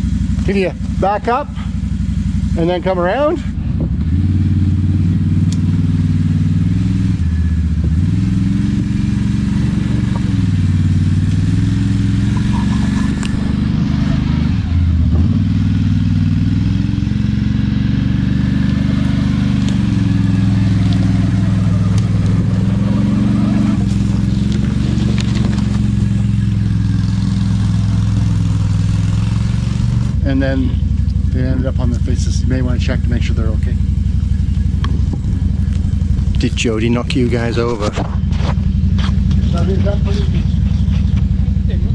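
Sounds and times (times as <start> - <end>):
atv engine running: 0.0 - 41.9.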